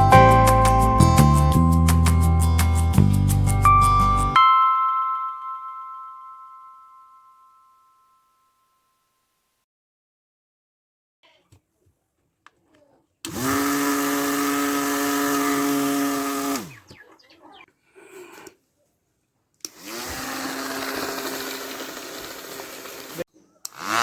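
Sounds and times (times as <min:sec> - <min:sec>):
small electric motor whining: 0:13.3 - 0:16.8, 0:19.7 - 0:24.0.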